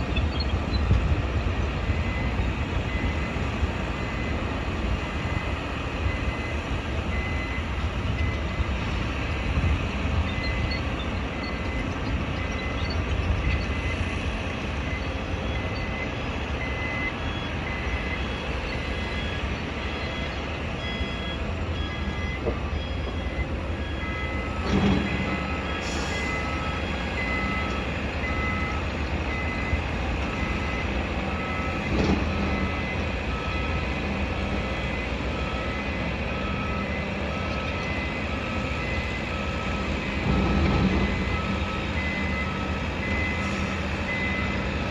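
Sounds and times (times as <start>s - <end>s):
lower reversing alarm: 0.0s - 44.9s
reversing alarms beeping: 0.0s - 44.9s
higher-pitched reversing alarm: 14.8s - 44.8s.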